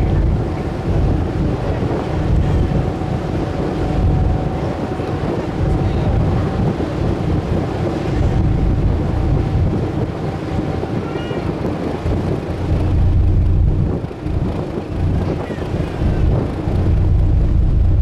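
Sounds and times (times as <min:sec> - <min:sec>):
boat engine rumble: 0:00.0 - 0:18.0
wind buffeting microphone: 0:00.0 - 0:18.0
seabird call: 0:10.4 - 0:12.0.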